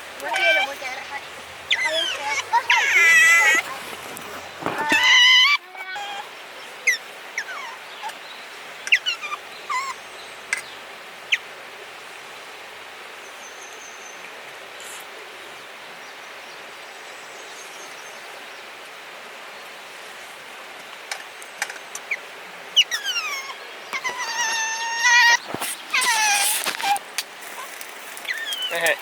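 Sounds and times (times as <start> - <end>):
faint background hiss: 0.0 - 29.0
otter squeaky chirps: 22.8 - 29.0.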